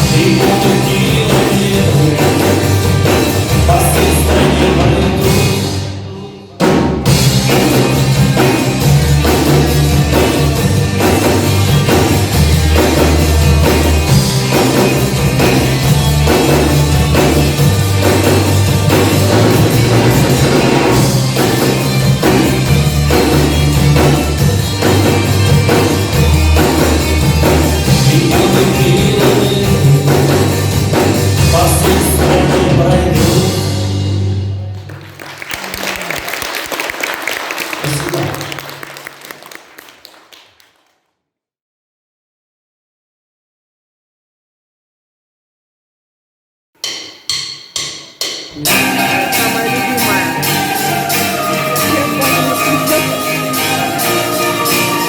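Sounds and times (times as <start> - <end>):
bass guitar: 0.0 - 35.2, 48.6 - 55.0
drum kit: 0.0 - 36.4, 46.8 - 55.0
live rock band playing: 0.0 - 36.6, 48.6 - 55.0
audience applause: 34.7 - 41.0.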